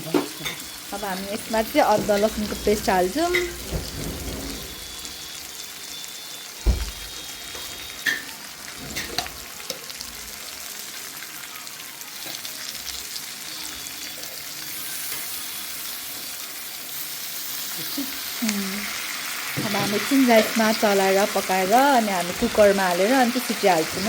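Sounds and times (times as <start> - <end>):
food sizzling in a pan: 0.0 - 24.0.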